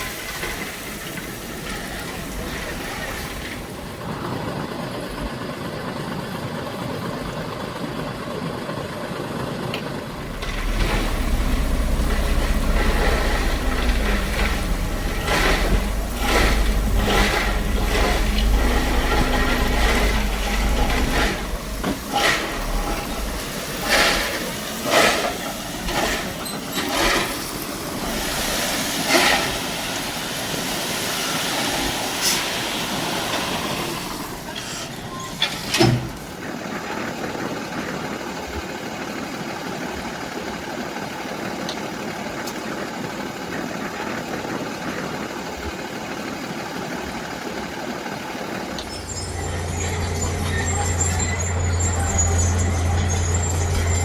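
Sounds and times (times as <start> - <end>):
heavy machinery clanking on gravel: 0.0 - 4.0, 9.7 - 37.5, 47.0 - 54.0
steady machine engine noise: 0.0 - 54.0
deep hum: 10.1 - 24.4, 48.9 - 54.0.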